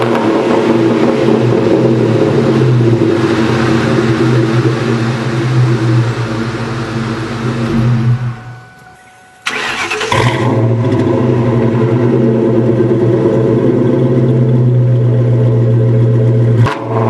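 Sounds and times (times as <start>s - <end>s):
car engine idling: 0.0s - 17.0s
engine starting burst: 7.6s - 11.7s.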